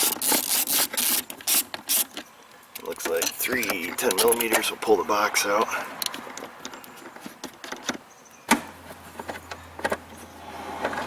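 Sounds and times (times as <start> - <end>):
hand tools clicking on metal: 0.0 - 4.8.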